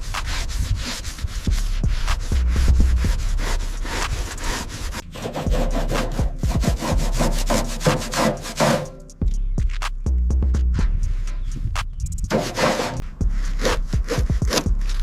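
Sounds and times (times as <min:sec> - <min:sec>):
brush scrubbing a surface: 0:00.0 - 0:09.0, 0:12.3 - 0:15.0.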